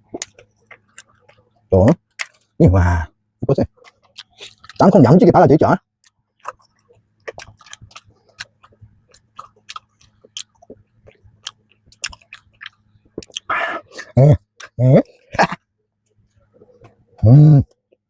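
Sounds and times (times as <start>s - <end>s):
close-miked chewing: 0.0s - 2.6s, 3.7s - 5.0s, 6.0s - 18.0s
wet mouth clicks: 6.4s - 14.8s.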